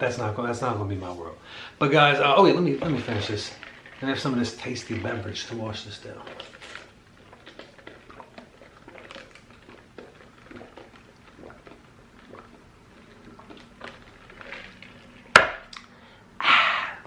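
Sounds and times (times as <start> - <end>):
chewing and swallowing: 6.1 - 16.0.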